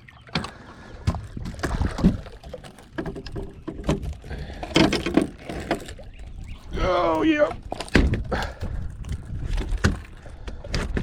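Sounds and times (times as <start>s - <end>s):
knocks and thuds on a boat: 0.2s - 11.0s.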